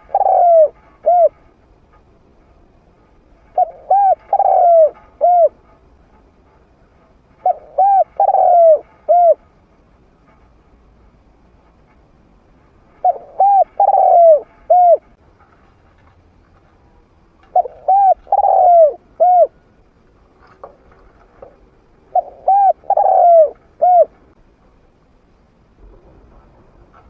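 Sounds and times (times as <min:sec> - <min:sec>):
dove cooing: 0:00.0 - 0:01.4, 0:03.5 - 0:05.6, 0:07.4 - 0:09.4, 0:13.0 - 0:15.1, 0:17.5 - 0:19.6, 0:22.0 - 0:24.2.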